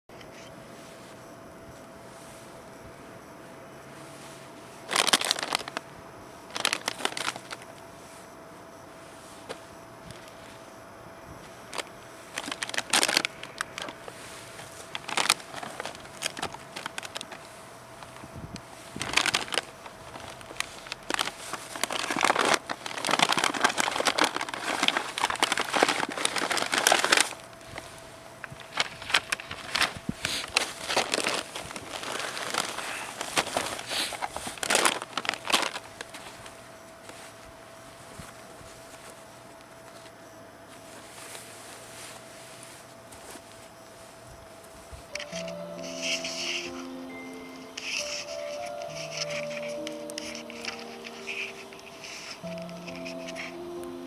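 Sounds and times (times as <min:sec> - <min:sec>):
faint steady tone: 0:00.1 - 0:29.9
packaging rustling and crinkling: 0:04.8 - 0:05.9, 0:06.5 - 0:08.1, 0:11.4 - 0:54.0.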